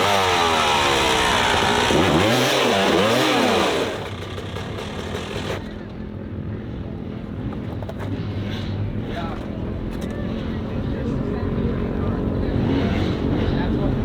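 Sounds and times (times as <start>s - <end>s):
dirt bike engine revving: 0.0s - 6.0s.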